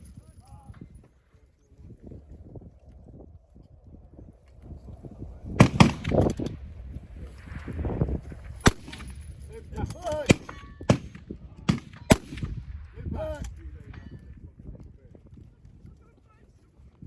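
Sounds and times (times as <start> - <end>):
rifle shots cracking: 5.6 - 6.7, 8.4 - 14.1.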